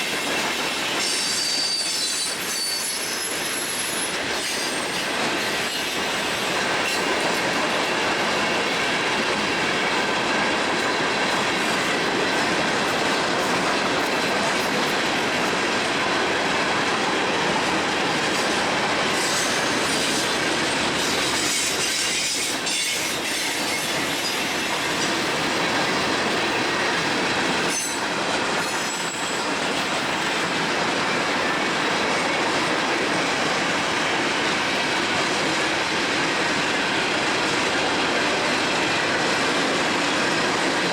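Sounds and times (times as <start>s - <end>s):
train wheels rumbling on rails: 0.0s - 40.9s
faint wheel squeal: 1.1s - 5.0s.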